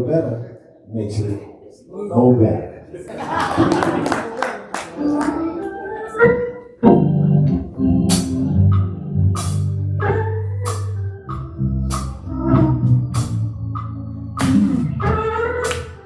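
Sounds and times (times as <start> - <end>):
jazz band playing: 5.0 - 16.0.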